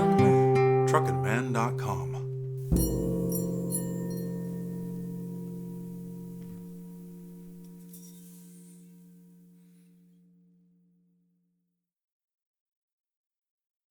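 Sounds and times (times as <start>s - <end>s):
gong ringing: 1.0s - 8.9s.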